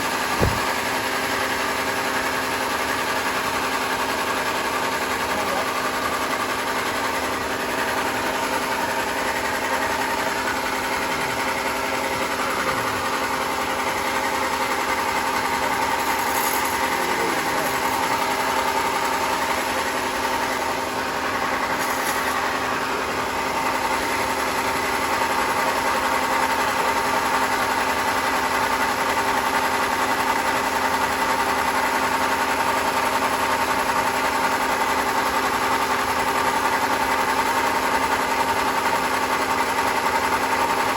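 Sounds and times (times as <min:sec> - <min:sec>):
sawmill machinery humming: 0:00.0 - 0:30.0.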